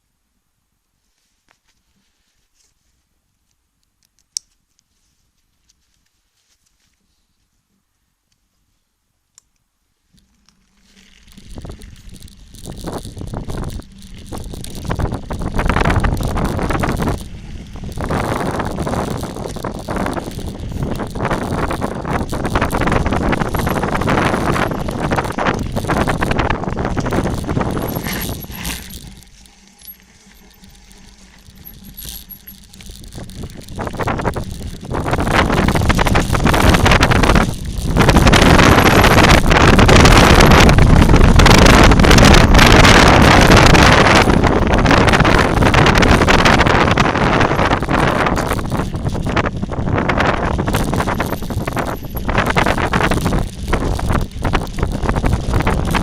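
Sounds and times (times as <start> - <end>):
bike crunching and rattling on dirt trail: 10.1 - 56.0
wind buffeting microphone: 11.2 - 29.5, 30.6 - 56.0.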